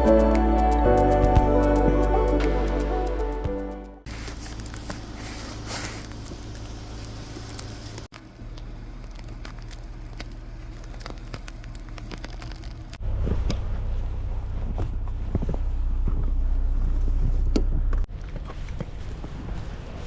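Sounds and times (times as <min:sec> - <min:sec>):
music: 0:00.0 - 0:04.1.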